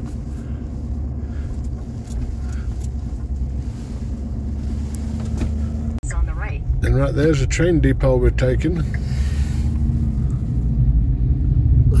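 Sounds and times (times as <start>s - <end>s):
vehicle engine and tyres rumbling: 0.0s - 12.0s.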